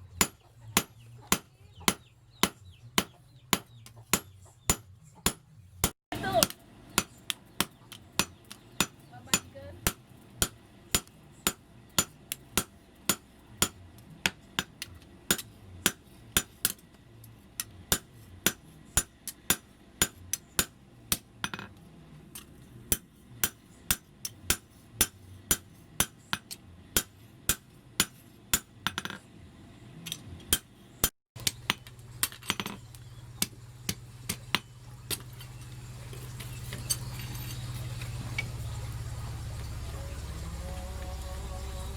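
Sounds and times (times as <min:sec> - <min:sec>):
hammer striking steel on anvil: 0:00.2 - 0:16.8, 0:17.6 - 0:21.7, 0:22.3 - 0:29.2
low hum: 0:31.4 - 0:41.9.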